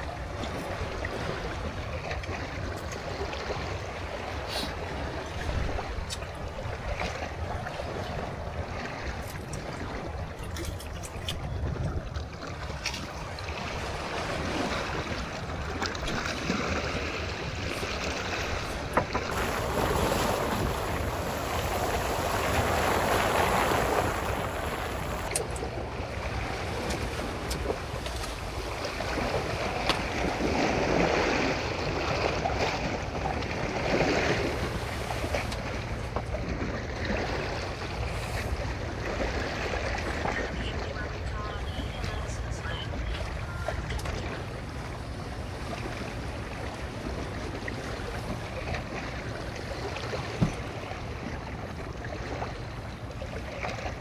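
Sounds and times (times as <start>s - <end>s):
sea waves washing: 12.7s - 51.4s
wind buffeting microphone: 13.8s - 31.7s.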